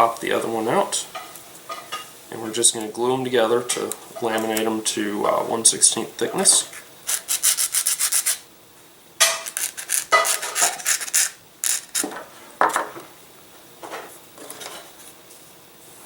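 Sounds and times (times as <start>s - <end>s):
sandpaper scratching wood: 7.1s - 8.4s, 9.5s - 12.1s.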